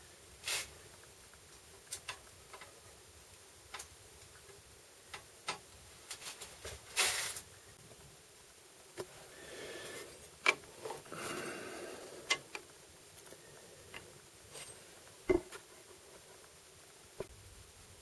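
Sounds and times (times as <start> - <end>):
tools clicking and knocking: 15.3 - 15.6.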